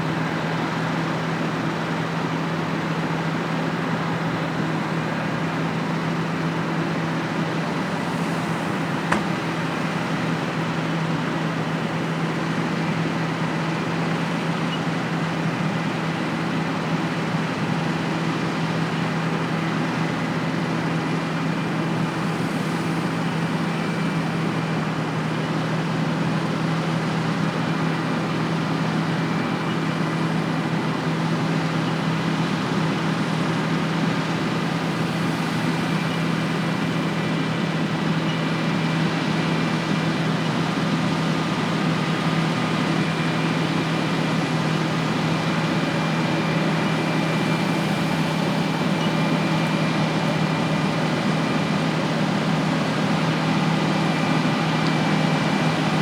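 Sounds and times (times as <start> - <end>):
diesel engine droning: 0.0 - 56.0
faint steady whine: 33.2 - 56.0.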